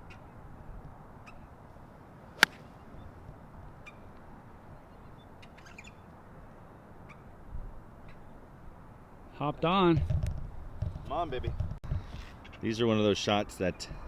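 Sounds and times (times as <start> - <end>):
low outdoor hiss: 0.0 - 9.9
golf club striking ball: 2.3 - 2.7.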